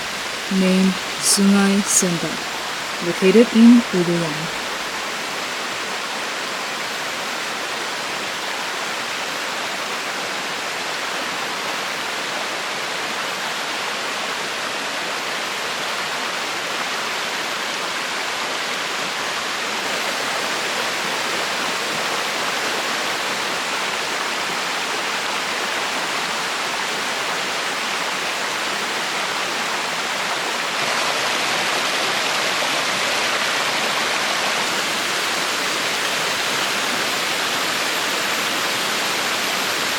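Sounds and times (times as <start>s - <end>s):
river water rushing: 4.5s - 39.9s.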